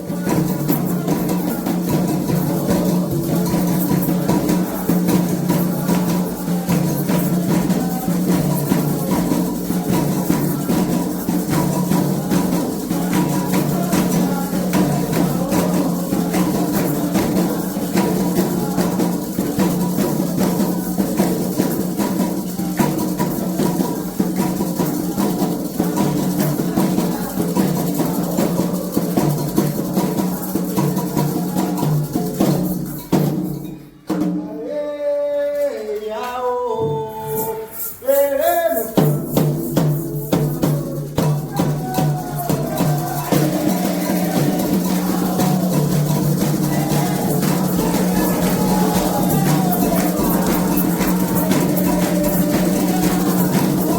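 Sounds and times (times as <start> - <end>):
person singing: 0.0 - 32.2, 34.2 - 53.9
hand drums: 0.0 - 34.7, 36.8 - 53.9
shaken percussion: 0.0 - 35.8, 36.8 - 53.9.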